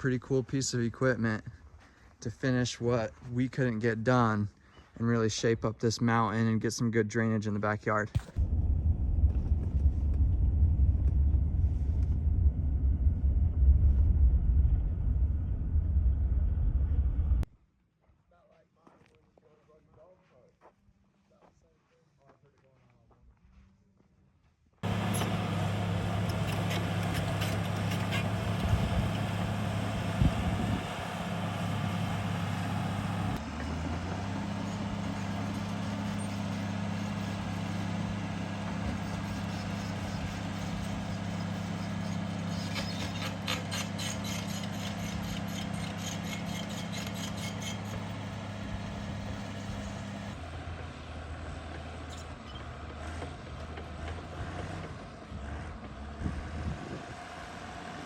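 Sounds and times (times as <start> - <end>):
heavy diesel engine running: 24.8 - 58.0.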